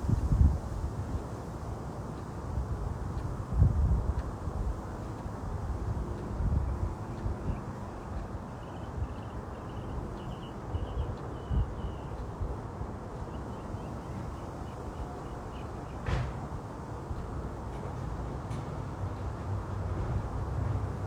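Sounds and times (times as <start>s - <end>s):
bird chirping: 7.0s - 12.2s.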